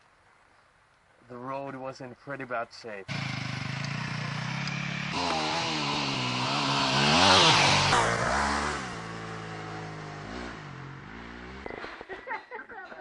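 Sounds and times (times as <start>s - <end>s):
dirt bike engine running: 3.1s - 11.7s.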